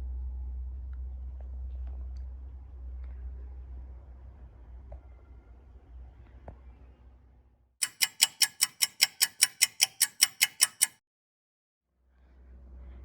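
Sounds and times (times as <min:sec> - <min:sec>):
clock ticking sound effect: 0:07.8 - 0:11.0.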